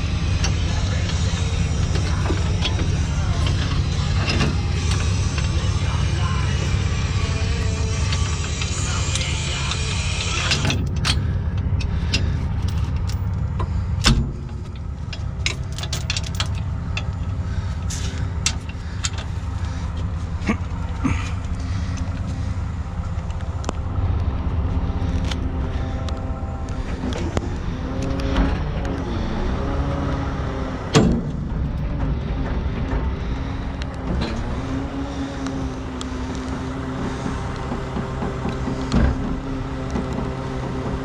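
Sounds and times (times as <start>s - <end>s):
truck diesel engine rumbling: 0.0s - 41.0s
metallic clicks and clinks: 14.5s - 17.2s.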